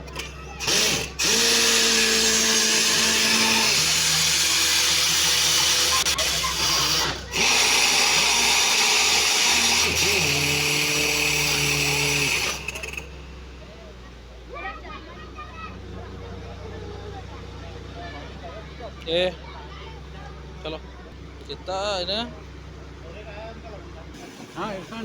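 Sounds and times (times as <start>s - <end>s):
machine hum: 0.0s - 14.5s
drilling rig rushing noise: 0.0s - 16.8s, 23.0s - 25.0s.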